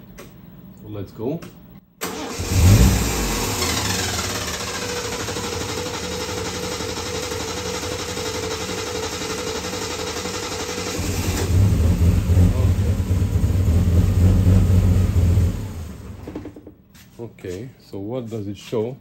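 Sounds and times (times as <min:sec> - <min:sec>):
starter motor cranking engine: 0:02.0 - 0:16.6
car engine running: 0:02.4 - 0:16.4.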